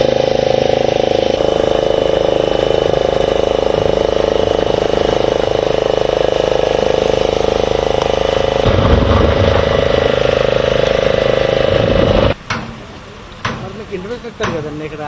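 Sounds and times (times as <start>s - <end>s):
engine running with fast pulse: 0.0s - 12.4s
low rumble: 8.6s - 12.4s.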